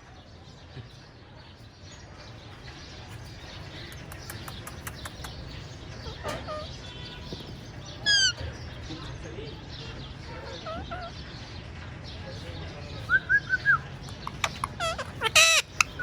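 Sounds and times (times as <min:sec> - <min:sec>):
low background hum: 0:02.0 - 0:16.0
parakeet clicks and chirps: 0:03.1 - 0:06.7, 0:13.5 - 0:16.0
parakeet call: 0:08.0 - 0:08.5, 0:14.1 - 0:16.0.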